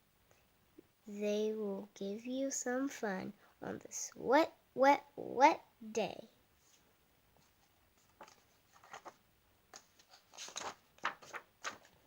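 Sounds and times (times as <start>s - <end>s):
paper rustling and crinkling: 7.4s - 12.0s.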